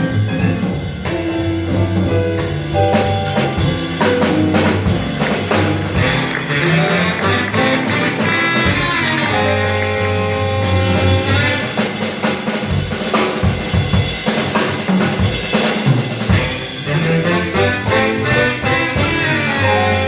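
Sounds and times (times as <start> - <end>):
drum kit fills and rimshots: 0.0 - 20.0
jazz band playing swing: 0.0 - 20.0
held horn notes: 3.0 - 12.4, 16.8 - 20.0.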